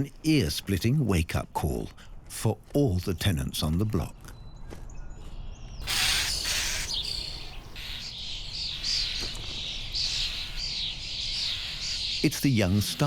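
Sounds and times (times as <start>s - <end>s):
starling chicks begging calls: 5.8s - 13.0s.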